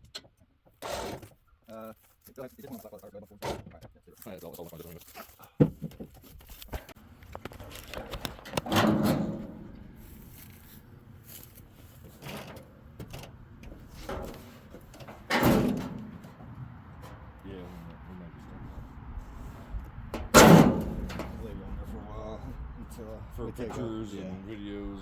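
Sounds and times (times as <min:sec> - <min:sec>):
scraping: 0:03.7 - 0:22.6.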